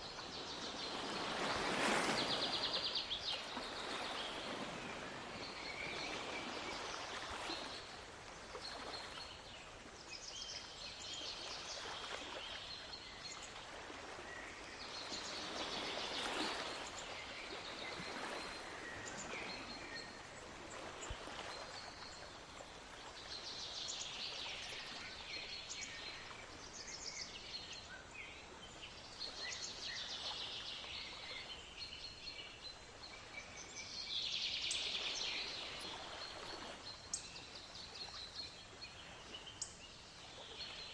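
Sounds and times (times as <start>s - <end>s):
sea waves washing: 0.5s - 7.9s.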